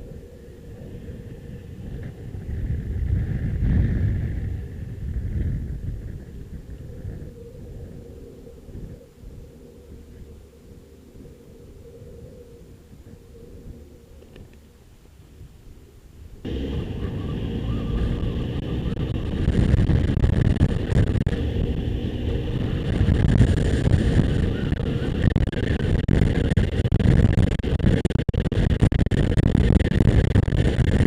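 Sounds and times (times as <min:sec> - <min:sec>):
wind noise on microphone: 0:00.0 - 0:31.0
motorcycle engine running: 0:16.5 - 0:26.4.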